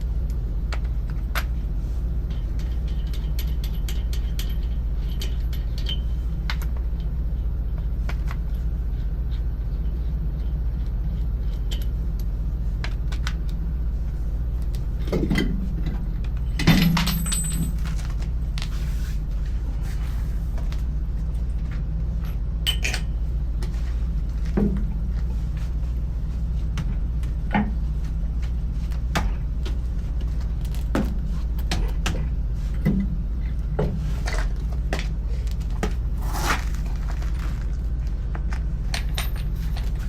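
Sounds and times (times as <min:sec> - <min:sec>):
low machine hum: 0:00.0 - 0:40.0
metallic clinks and knocks: 0:16.6 - 0:18.2, 0:38.9 - 0:40.0.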